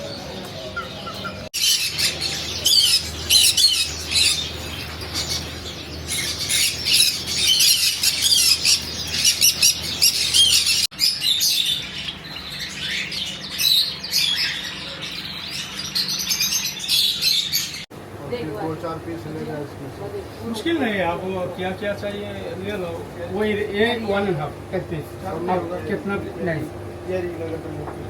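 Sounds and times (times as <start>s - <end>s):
caged birds chirping and squawking: 0.0s - 17.9s.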